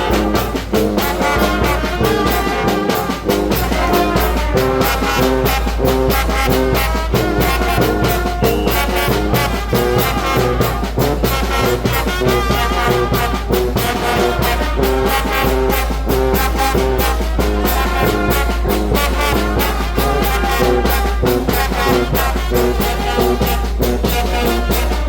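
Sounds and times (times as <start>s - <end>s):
brass band playing: 0.0s - 25.0s
horn melody: 0.0s - 25.0s
percussion beats: 0.0s - 25.0s.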